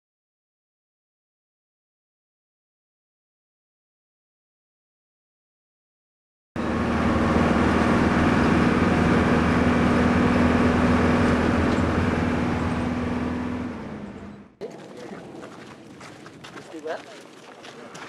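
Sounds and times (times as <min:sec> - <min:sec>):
vehicle engine drone: 0:06.6 - 0:16.7
road noise: 0:06.6 - 0:18.0.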